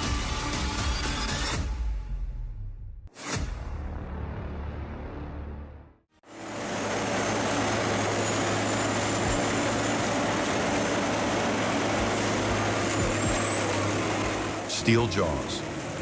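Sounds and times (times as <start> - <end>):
deep engine drone: 6.6 - 16.0
high steady whine: 6.6 - 16.0.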